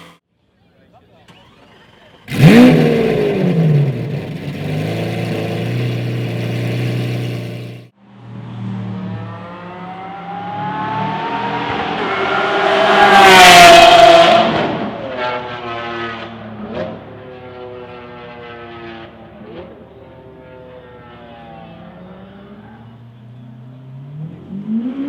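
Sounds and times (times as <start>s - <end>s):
sports car engine droning: 1.0s - 25.0s
car accelerating hard: 2.2s - 7.9s, 8.8s - 22.9s.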